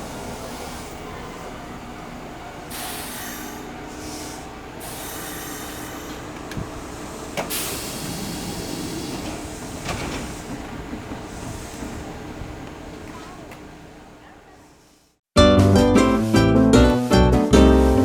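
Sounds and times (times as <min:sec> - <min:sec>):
electric train rumbling: 0:00.0 - 0:18.0
sharp train clacks: 0:02.7 - 0:14.8.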